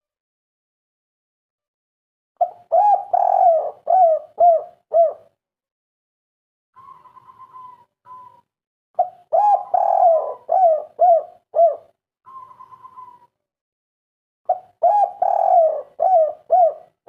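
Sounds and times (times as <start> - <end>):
dove cooing: 2.4 - 5.4, 6.8 - 8.4, 9.0 - 13.4, 14.5 - 17.0.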